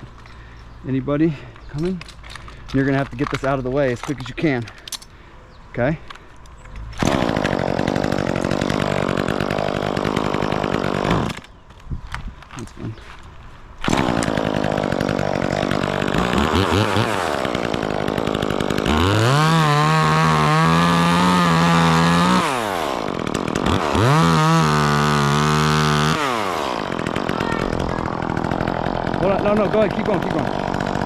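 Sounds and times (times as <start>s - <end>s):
chainsaw idling and revving: 6.8s - 11.6s, 13.8s - 31.0s.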